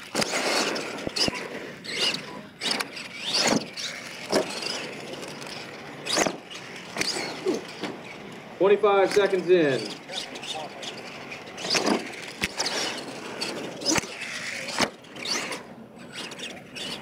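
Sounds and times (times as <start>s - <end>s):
toy truck motor whining: 0.0s - 8.4s, 9.0s - 17.0s.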